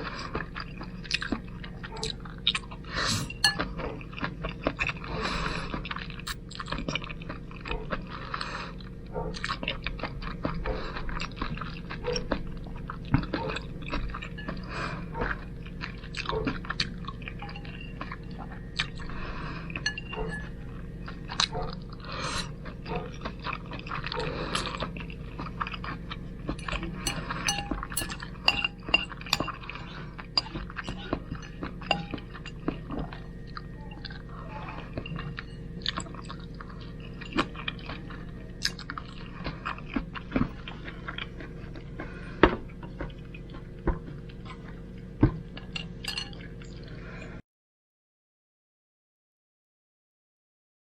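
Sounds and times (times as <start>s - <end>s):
chewing spaghetti: 0.0s - 47.3s
utensil clinking on dish: 3.2s - 3.8s, 19.8s - 20.5s, 26.6s - 32.8s, 46.0s - 46.4s.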